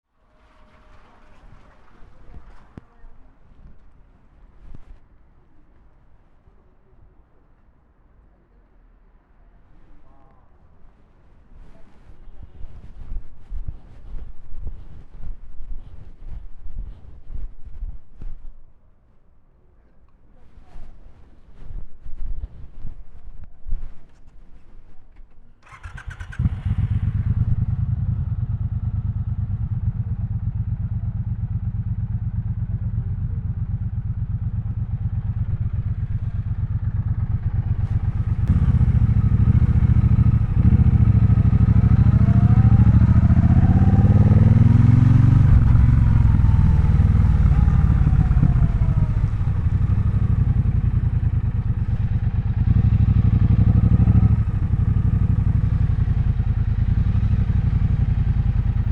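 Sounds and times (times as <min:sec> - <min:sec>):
motorcycle engine accelerating: 0:25.6 - 0:58.9.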